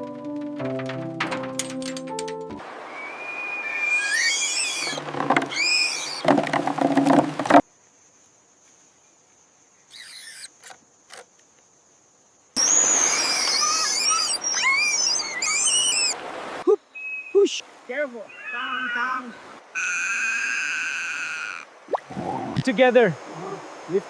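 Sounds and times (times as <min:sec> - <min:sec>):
high chirping animal calls: 0:03.0 - 0:06.3, 0:09.9 - 0:10.5, 0:12.6 - 0:16.2, 0:18.2 - 0:22.6.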